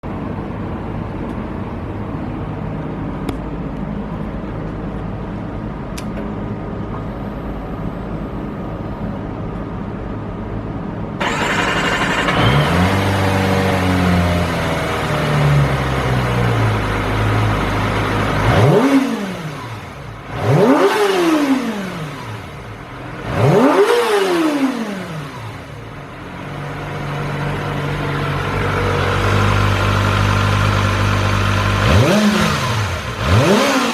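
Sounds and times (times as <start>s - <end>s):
motorcycle engine idling and revving: 11.2s - 33.9s.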